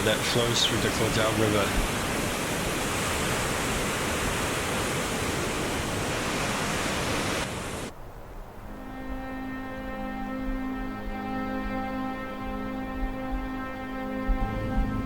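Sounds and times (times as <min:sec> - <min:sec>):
white water rushing through gorge: 0:00.0 - 0:07.9
soft background music: 0:08.7 - 0:15.0.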